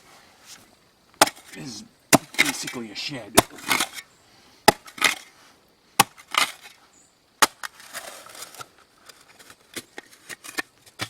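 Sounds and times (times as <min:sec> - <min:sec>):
shovel striking stony dirt: 0:01.2 - 0:02.8
shovel blade scraping crunch: 0:02.2 - 0:04.1, 0:07.4 - 0:10.7.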